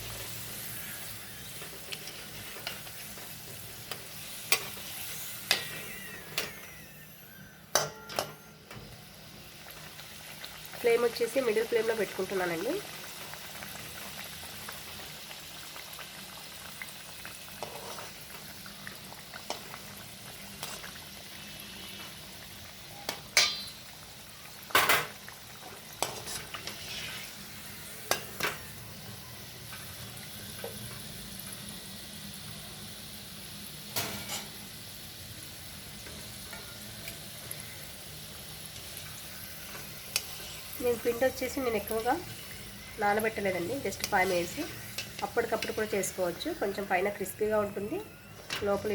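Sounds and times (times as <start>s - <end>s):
food deep-frying in oil: 0.0s - 48.9s
metal utensil knocking on pan: 7.8s - 8.4s, 23.4s - 23.7s.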